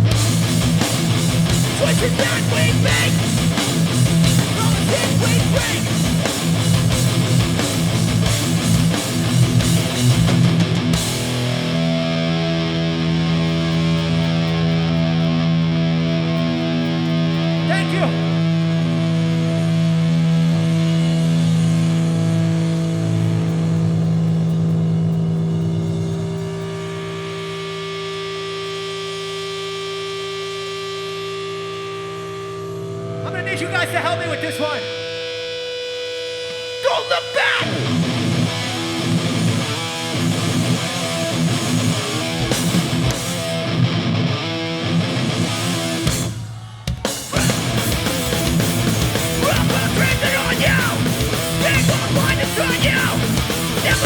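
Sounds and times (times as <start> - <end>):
punk band playing live: 0.0 - 23.8, 36.6 - 54.0
distorted electric guitar drone: 0.0 - 54.0.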